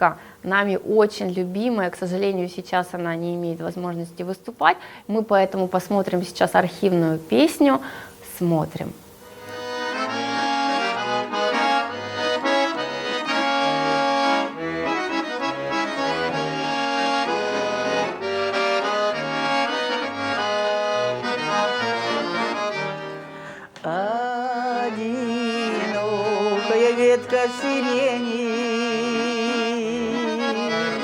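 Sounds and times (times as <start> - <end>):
accordion playing: 9.2 - 31.0.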